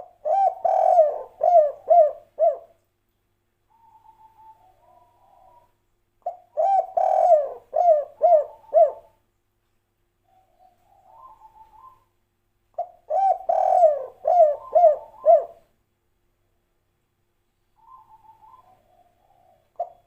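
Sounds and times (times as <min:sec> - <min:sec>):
dove cooing: 0:00.0 - 0:02.8, 0:03.7 - 0:09.2, 0:10.3 - 0:12.1, 0:12.8 - 0:15.6, 0:17.8 - 0:20.0.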